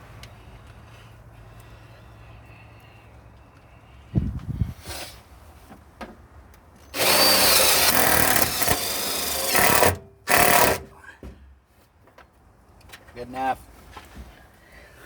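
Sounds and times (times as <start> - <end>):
power drill driving screws into metal: 6.9 - 10.9.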